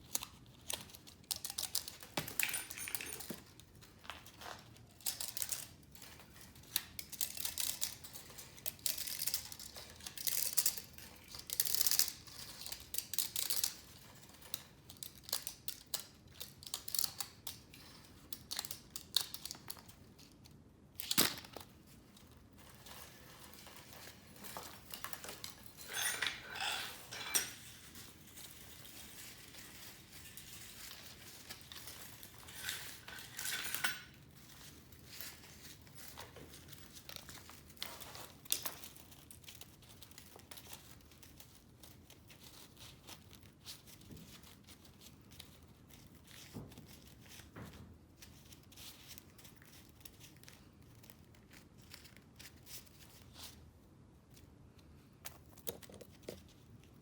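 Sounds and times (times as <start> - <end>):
metal parts clinking and scraping: 1.3 - 3.6, 22.8 - 35.8.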